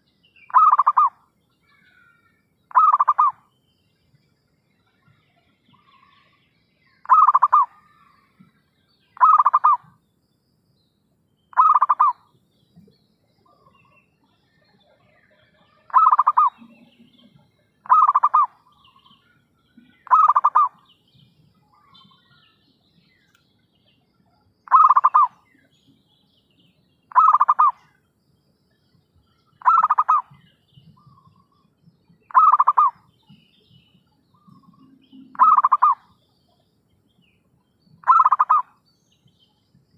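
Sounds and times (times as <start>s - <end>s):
dove cooing: 0.5s - 1.1s, 2.7s - 3.4s, 7.1s - 7.7s, 9.2s - 9.8s, 11.6s - 12.1s, 15.9s - 16.6s, 17.8s - 18.5s, 20.0s - 20.7s, 24.7s - 25.3s, 27.1s - 27.7s, 29.6s - 30.2s, 32.3s - 33.0s, 35.3s - 36.0s, 38.0s - 38.6s.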